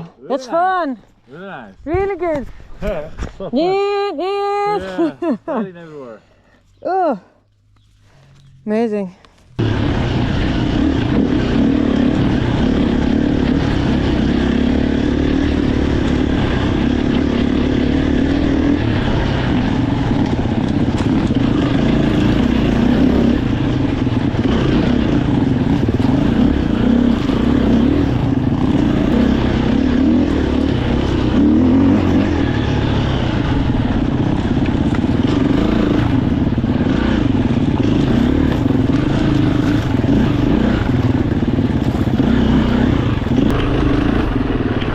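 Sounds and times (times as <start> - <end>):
dirt bike engine revving: 9.6 - 44.9.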